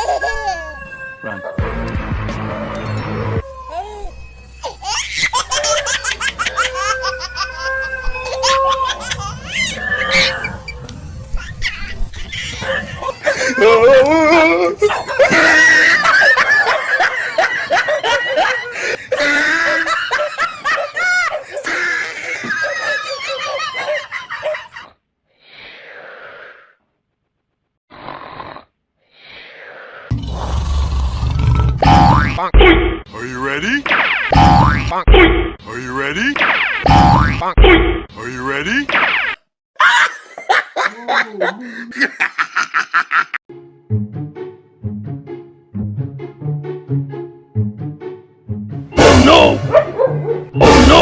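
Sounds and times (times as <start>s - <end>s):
background music: 1.2s - 7.6s, 43.5s - 51.0s
rapid laughter: 15.1s - 24.9s, 39.8s - 43.4s
hoarse snore-like breaths: 27.9s - 31.8s
sudden loud burst: 49.0s - 49.7s.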